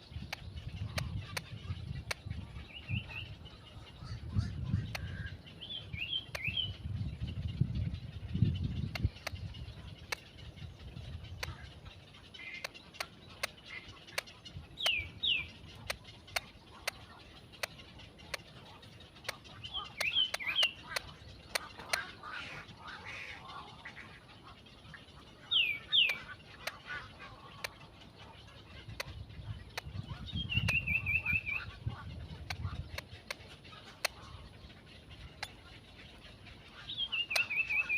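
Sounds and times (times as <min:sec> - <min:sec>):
bird chirping: 0:00.0 - 0:37.9
sharp clicks: 0:00.2 - 0:02.3, 0:06.2 - 0:06.6, 0:08.8 - 0:10.3, 0:11.3 - 0:11.7, 0:12.4 - 0:15.0, 0:15.7 - 0:18.6, 0:19.2 - 0:22.2, 0:26.0 - 0:26.9, 0:28.9 - 0:31.5, 0:32.4 - 0:34.2, 0:37.2 - 0:37.8.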